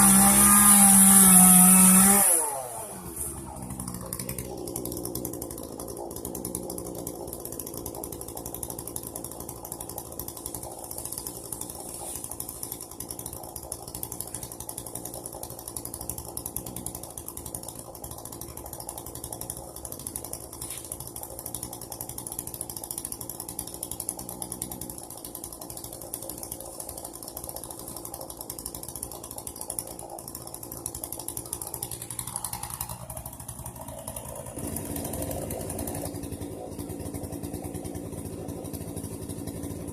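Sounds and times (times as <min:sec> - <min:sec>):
chainsaw engine running: 0:00.0 - 0:39.9.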